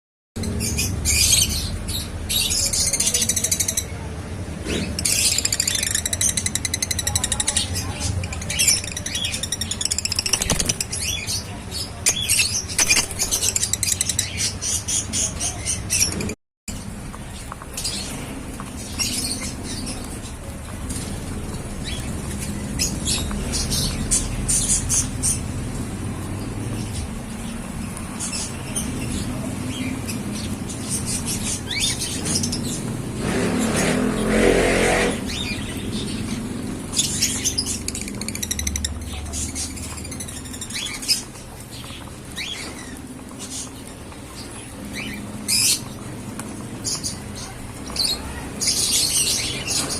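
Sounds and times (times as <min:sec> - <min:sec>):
lovebirds chirping: 0:00.4 - 0:16.4
lovebirds chirping and squawking: 0:00.4 - 0:49.9.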